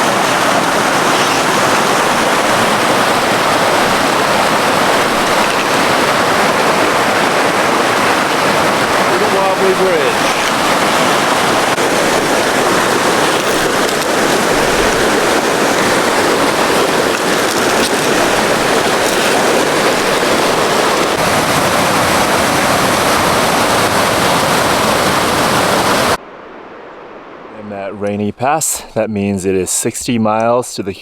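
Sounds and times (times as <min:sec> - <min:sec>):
heavy rain on a roof: 0:00.0 - 0:26.2.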